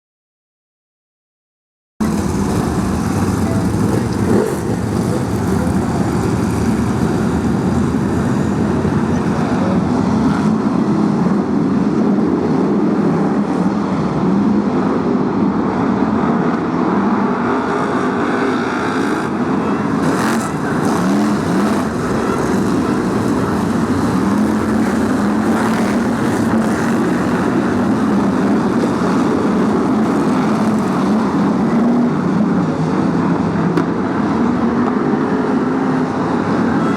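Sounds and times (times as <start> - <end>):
racing cars passing: 2.0 - 36.9.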